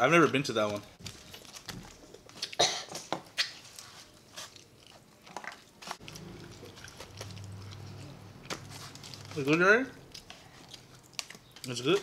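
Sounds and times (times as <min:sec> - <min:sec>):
wet chewing and lip smacks: 0:04.4 - 0:09.4, 0:10.0 - 0:11.7.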